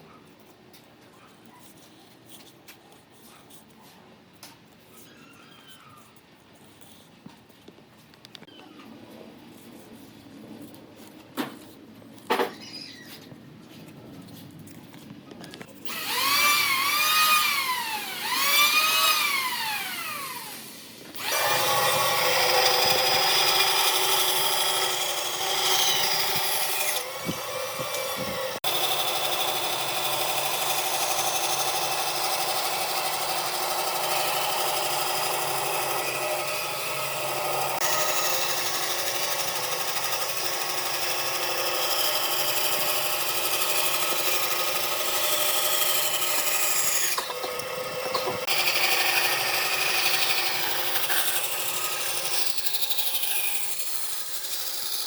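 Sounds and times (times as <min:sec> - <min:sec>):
power tool cutting wood: 0:15.8 - 0:55.0.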